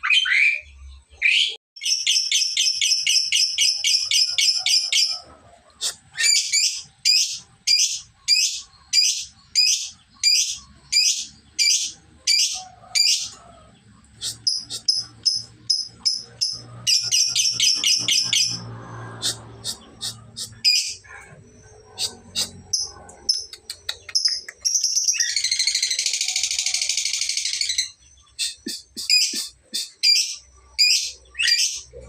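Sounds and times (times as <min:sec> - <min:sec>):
lovebird chattering: 0:05.8 - 0:13.4, 0:14.2 - 0:18.6, 0:21.9 - 0:31.9.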